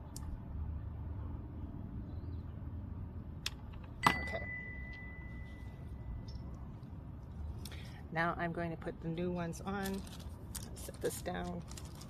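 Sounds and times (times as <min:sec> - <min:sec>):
metal object clinking: 0:04.0 - 0:05.8.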